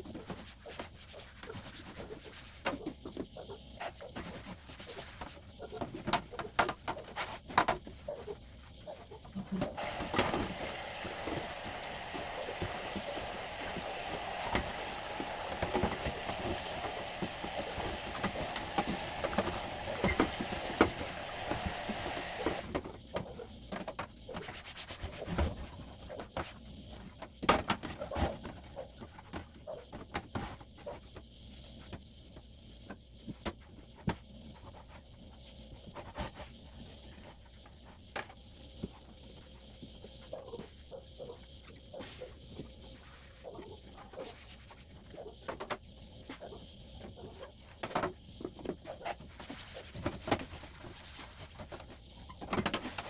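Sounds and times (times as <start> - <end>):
rushing water noise: 9.8 - 22.7.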